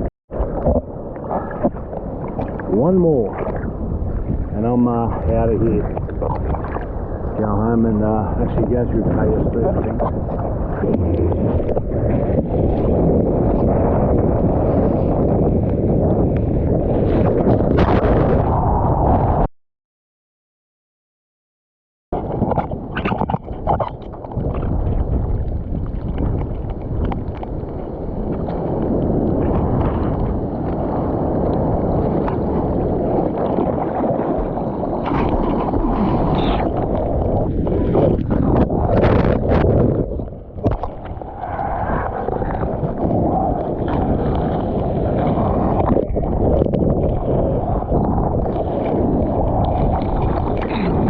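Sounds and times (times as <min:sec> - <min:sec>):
seawater rushing and sloshing: 0:00.0 - 0:19.5, 0:22.2 - 0:51.0
wind buffeting microphone: 0:00.0 - 0:19.5, 0:22.2 - 0:51.0
water splashing: 0:00.3 - 0:07.5, 0:31.8 - 0:51.0.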